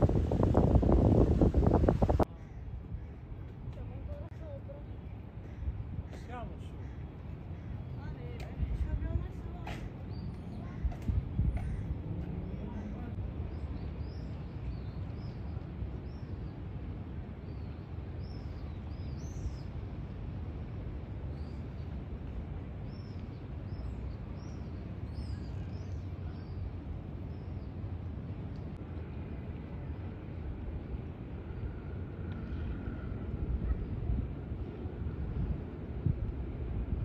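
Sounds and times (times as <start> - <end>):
low outdoor rumble: 0.0 - 37.0.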